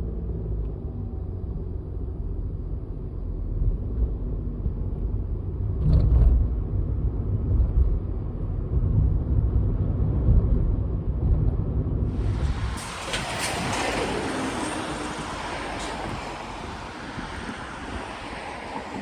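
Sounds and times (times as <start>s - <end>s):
car driving rumble inside cabin: 0.0s - 14.4s.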